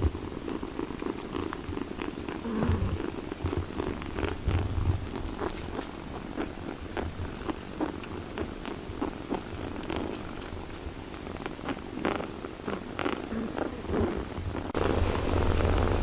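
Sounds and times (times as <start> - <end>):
cat purring: 0.0 - 16.0
small clicks: 9.3 - 13.3.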